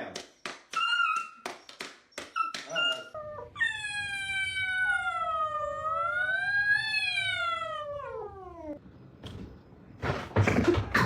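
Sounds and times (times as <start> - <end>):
cat yowling: 2.5 - 8.8.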